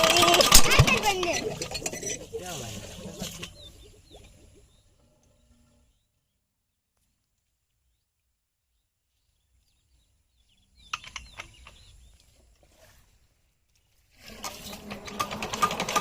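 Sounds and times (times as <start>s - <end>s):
birds chirping: 0.0s - 6.7s, 7.9s - 12.8s.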